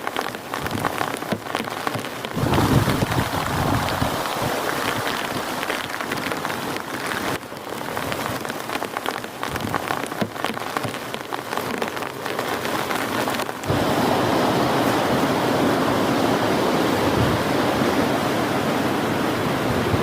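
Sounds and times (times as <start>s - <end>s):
raindrops ticking on a surface: 0.0s - 13.9s
heavy rain falling: 0.0s - 20.0s.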